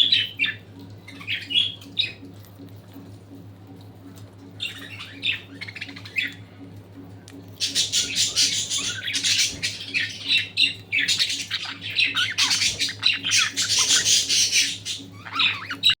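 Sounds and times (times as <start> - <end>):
budgerigars chattering and squawking: 0.0 - 2.2, 4.6 - 6.4, 7.6 - 16.0.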